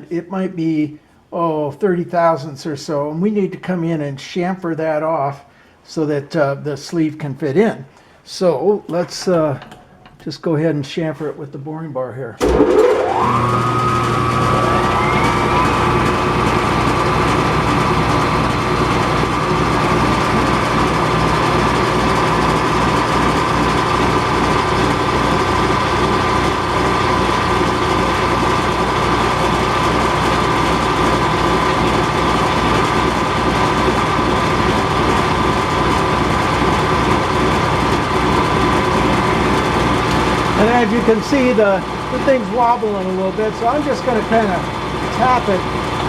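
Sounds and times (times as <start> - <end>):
metal lathe whining: 12.4 - 46.0.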